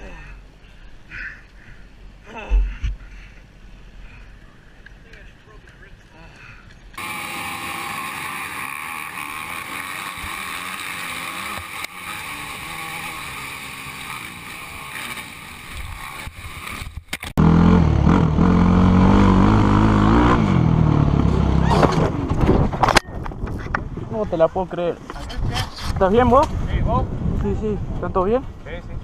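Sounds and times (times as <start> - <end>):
loud deep engine: 17.4 - 22.4.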